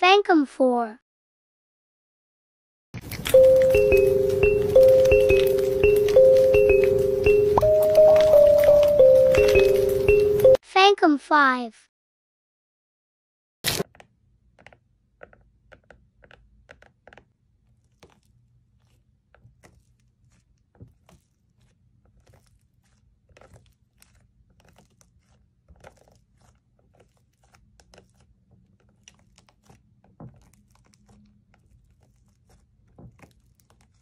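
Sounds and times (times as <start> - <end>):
slime crackling and popping: 3.0 - 10.5, 17.7 - 34.0.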